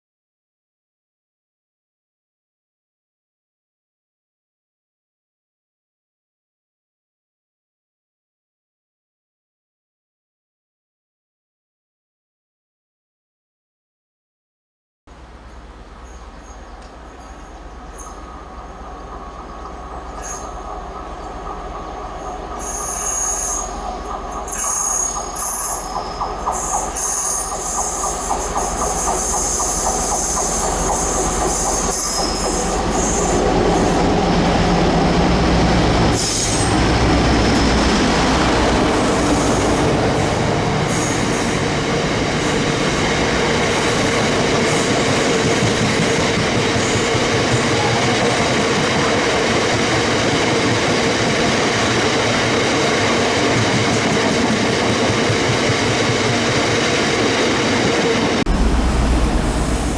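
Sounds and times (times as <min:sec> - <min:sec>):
train rumbling on rails: 0:15.1 - 0:59.9
train wheel squeal: 0:16.0 - 0:35.2, 0:36.1 - 0:38.0, 0:38.9 - 0:43.0, 0:43.6 - 0:58.3.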